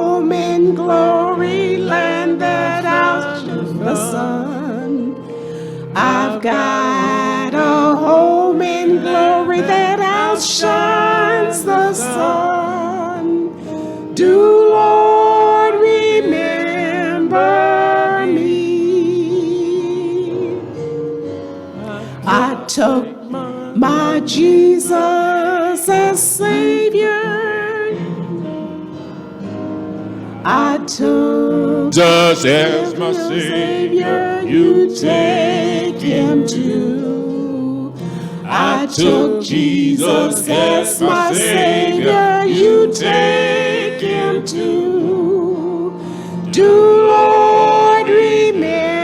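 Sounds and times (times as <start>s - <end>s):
vocal quartet singing gospel: 0.0s - 49.0s
instrumental accompaniment: 27.2s - 49.0s.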